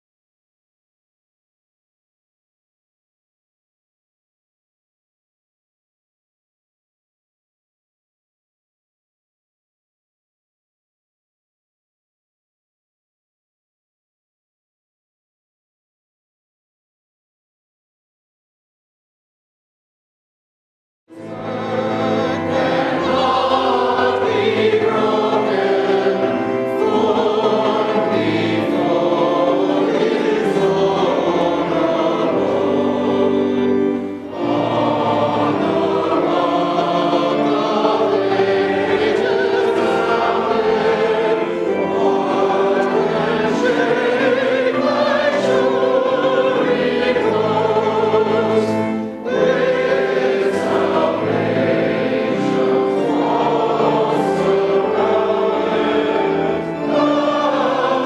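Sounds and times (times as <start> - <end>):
choir singing: 21.1 - 58.0.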